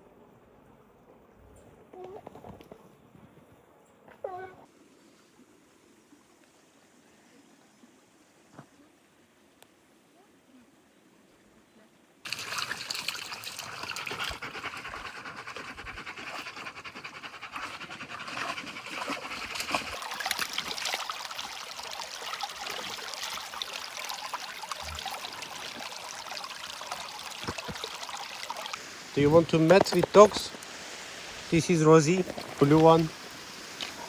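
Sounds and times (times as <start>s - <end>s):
water trickling and splashing: 12.2s - 14.6s, 18.2s - 34.0s.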